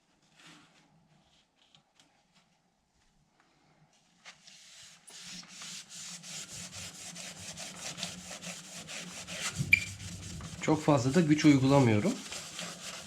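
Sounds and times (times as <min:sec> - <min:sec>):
sponge scrubbing glass door: 0:04.5 - 0:13.0.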